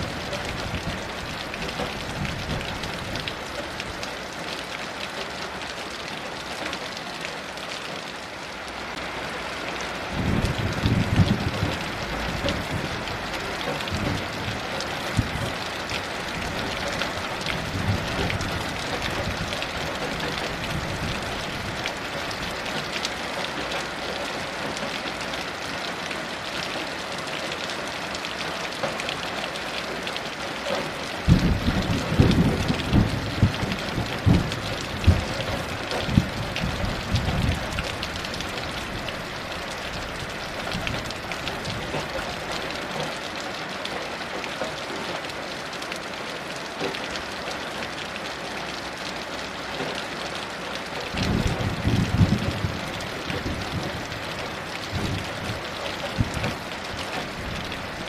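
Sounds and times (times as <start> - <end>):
heavy rain falling: 0.0 - 58.0
thunder rumbling: 10.1 - 15.7, 16.3 - 22.5, 31.3 - 42.1, 51.1 - 58.0.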